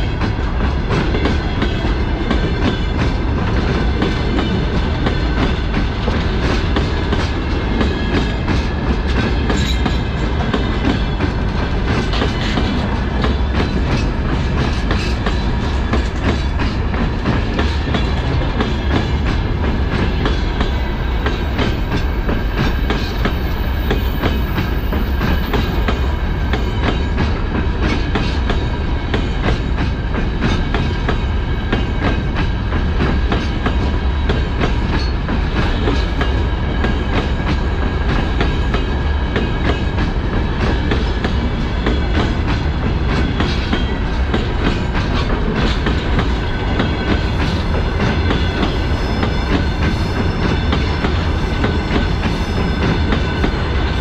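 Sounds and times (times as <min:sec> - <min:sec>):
clickety-clack over rail joints: 0:00.0 - 0:54.0
steel wheels rumbling on rails: 0:00.0 - 0:54.0.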